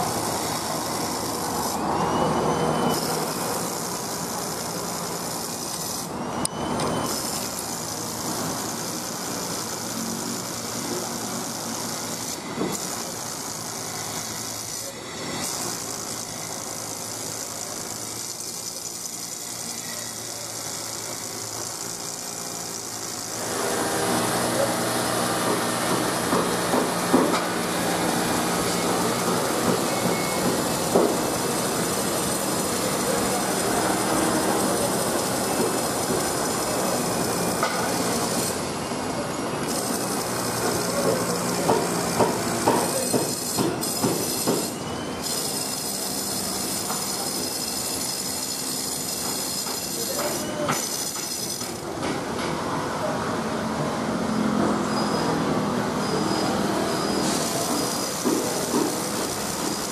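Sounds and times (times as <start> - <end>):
train running noise: 22.6 - 59.9.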